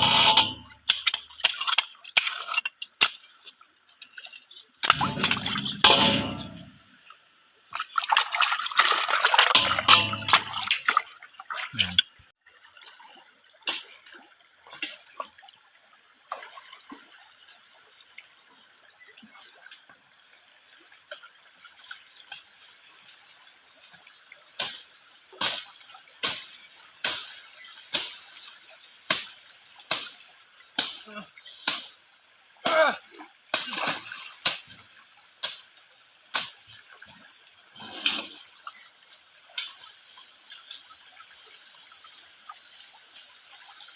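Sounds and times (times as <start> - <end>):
water trickling: 0.0 - 43.9
splashes in shallow water: 7.7 - 12.0, 32.6 - 37.2.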